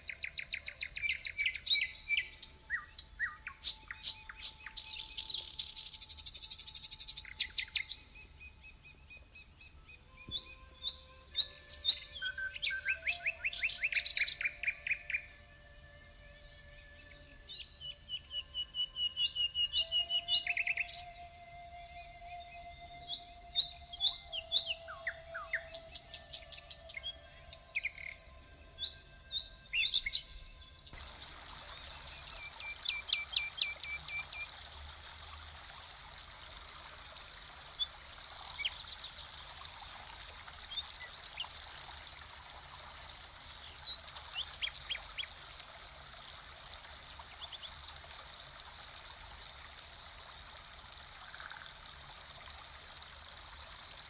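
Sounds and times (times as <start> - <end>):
songbirds chirping and trilling: 0.0 - 54.0
running water: 10.1 - 54.0.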